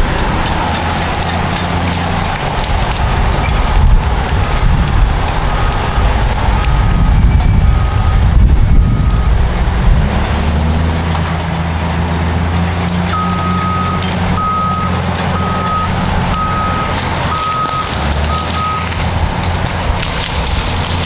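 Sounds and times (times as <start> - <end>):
bulldozer diesel engine running: 0.0 - 21.0
reversing alarm beeping: 5.6 - 9.5, 13.1 - 19.0.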